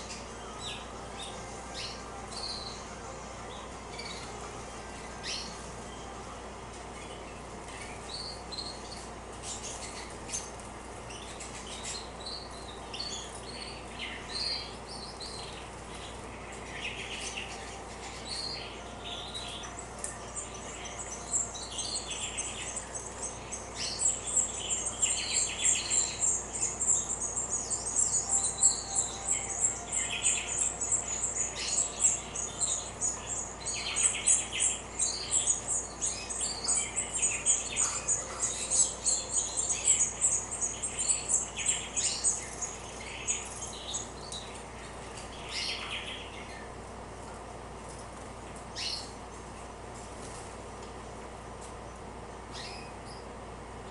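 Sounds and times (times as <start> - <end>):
high-pitched bird trill: 0.0 - 6.3, 6.9 - 46.8
canaries chirping: 0.0 - 50.7, 51.7 - 53.9.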